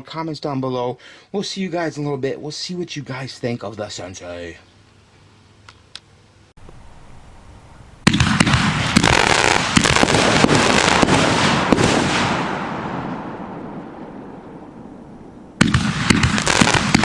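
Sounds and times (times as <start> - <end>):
firework shots and bursts: 8.0 - 13.8, 15.6 - 17.0.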